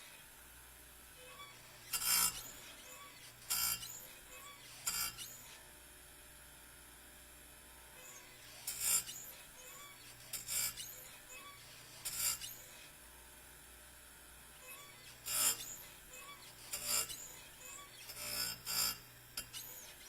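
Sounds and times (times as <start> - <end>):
metal file scraping chain: 1.3 - 5.6, 8.0 - 12.8, 14.6 - 20.0.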